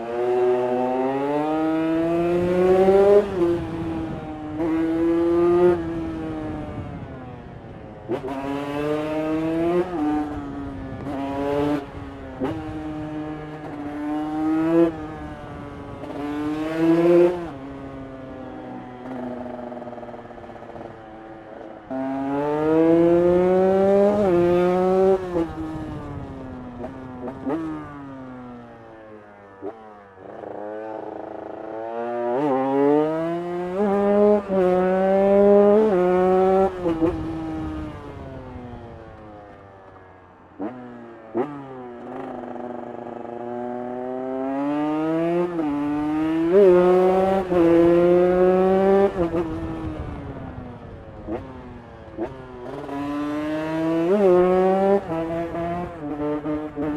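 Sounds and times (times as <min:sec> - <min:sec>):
two-stroke motorcycle revving: 0:00.0 - 0:56.9.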